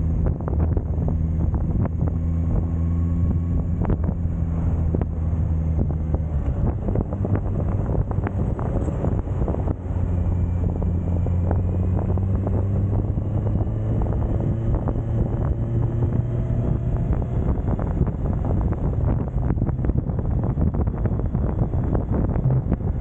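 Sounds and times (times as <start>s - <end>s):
motorcycle engine running: 0.0s - 23.0s
wind buffeting on microphone: 0.0s - 23.0s.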